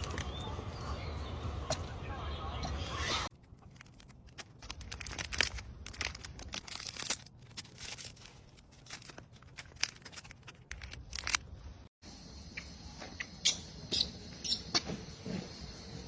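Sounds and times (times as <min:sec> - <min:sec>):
crackling and rustling handling noise: 0:03.3 - 0:11.9.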